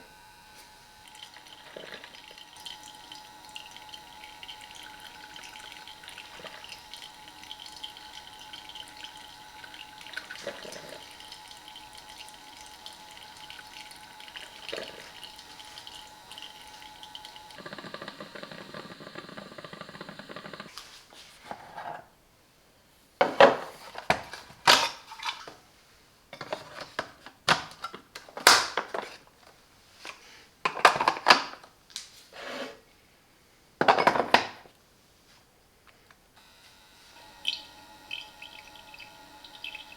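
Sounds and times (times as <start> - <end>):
coffee machine whirring hum: 0.0 - 20.8, 36.4 - 39.9.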